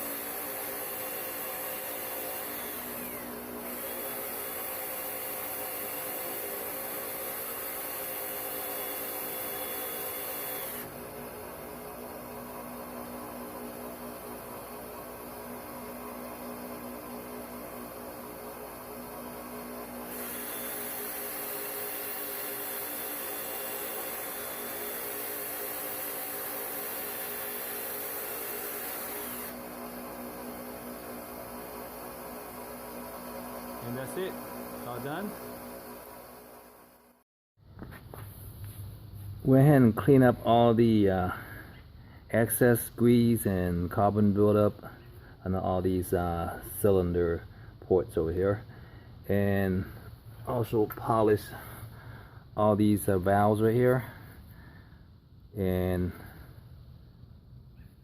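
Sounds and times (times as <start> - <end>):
electric drill scrubbing hiss: 0.0 - 11.1, 16.7 - 37.0
electric drill humming: 0.0 - 37.2.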